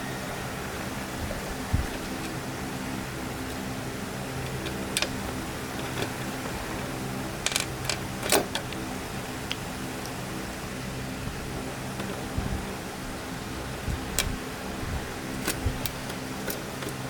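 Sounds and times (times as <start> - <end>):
electrical hum: 0.0 - 17.0
small parts clattering: 3.4 - 8.8
small parts clicking: 3.4 - 10.2, 15.3 - 17.0.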